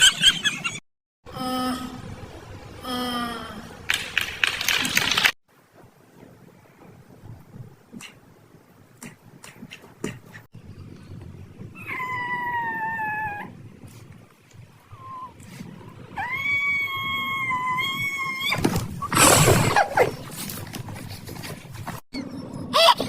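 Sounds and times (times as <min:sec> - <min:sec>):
animal high-pitched cries: 0:11.8 - 0:13.5
animal harsh noisy outburst: 0:16.2 - 0:20.0.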